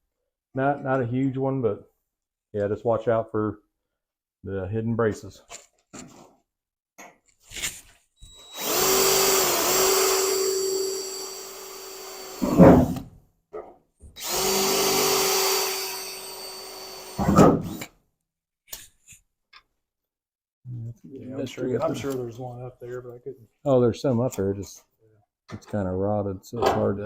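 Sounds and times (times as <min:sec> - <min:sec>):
electric drill cutting sheet metal: 0:08.2 - 0:13.0, 0:14.2 - 0:17.9.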